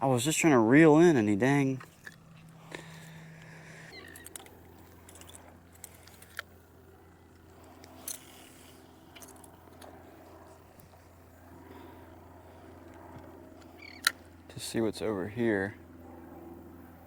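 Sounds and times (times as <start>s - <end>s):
low steady hum: 0.0s - 17.0s
fishing tackle clicking and rattling: 3.9s - 6.6s.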